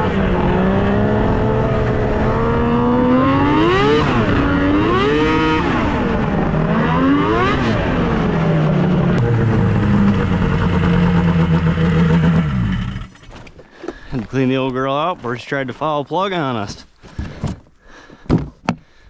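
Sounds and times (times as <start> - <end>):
snowmobile engine revving: 0.0 - 13.2.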